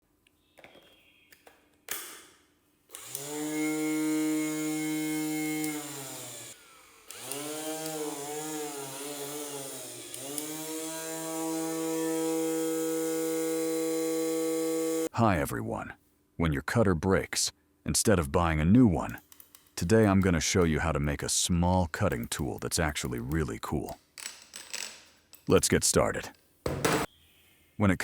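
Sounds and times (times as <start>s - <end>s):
electric motor whining: 2.9s - 15.1s.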